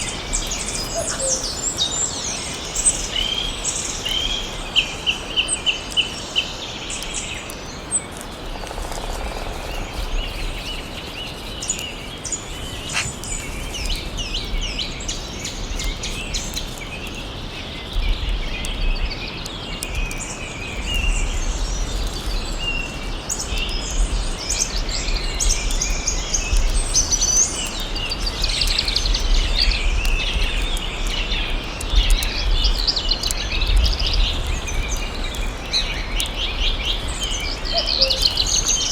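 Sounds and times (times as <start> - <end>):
forest ambience hiss: 0.0 - 18.2
birds singing and chirping: 0.0 - 38.9.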